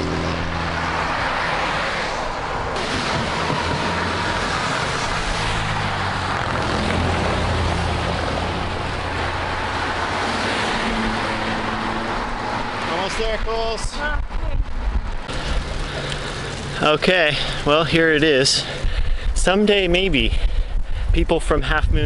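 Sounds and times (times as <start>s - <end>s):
highway traffic passing: 0.0s - 21.9s
wind rushing on microphone: 12.1s - 15.8s, 18.6s - 22.0s.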